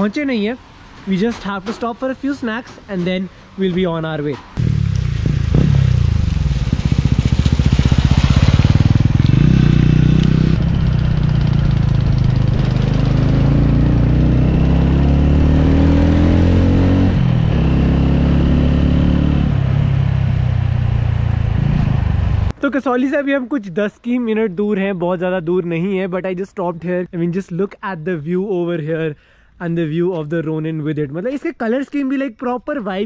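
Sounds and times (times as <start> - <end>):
motorcycle engine and exhaust: 4.6 - 22.6.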